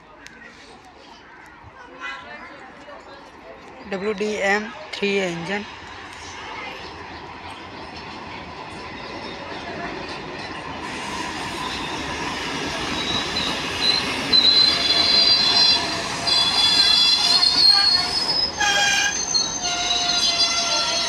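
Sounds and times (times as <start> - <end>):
rumble of train coaches: 0.0 - 21.0
train wheels and brakes squealing: 9.0 - 21.0.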